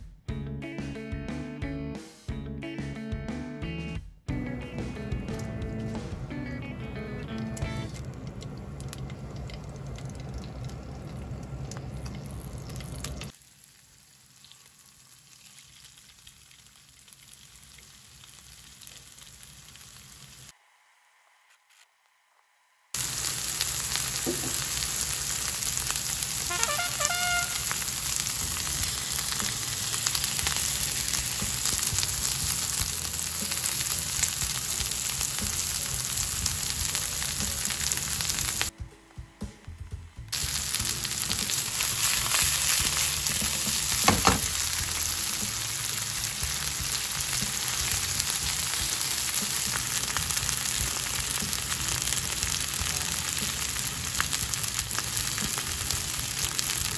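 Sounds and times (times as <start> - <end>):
food sizzling in oil: 7.4 - 20.6, 23.0 - 38.7, 40.3 - 56.9.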